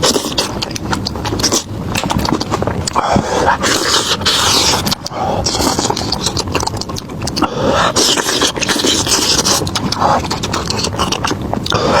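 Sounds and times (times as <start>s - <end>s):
crunching and chewing food: 0.0s - 12.0s.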